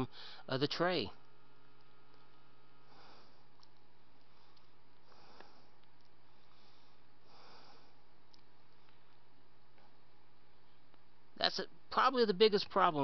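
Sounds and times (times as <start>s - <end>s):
low electrical hum: 0.0s - 13.0s
soft breaths or sniffs: 2.7s - 9.2s.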